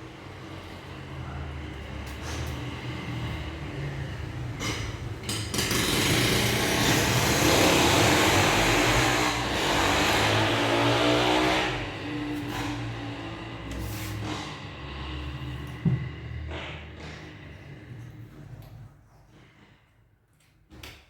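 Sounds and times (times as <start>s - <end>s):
power tool running: 5.5s - 13.1s.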